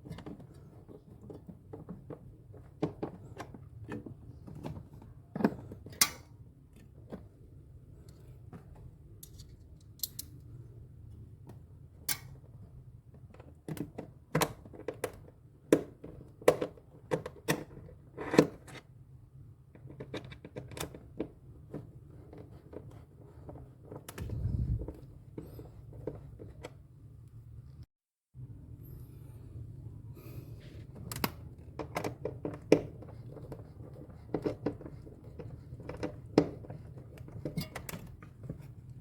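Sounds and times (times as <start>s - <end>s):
low thump-like rumble: 24.2s - 25.0s.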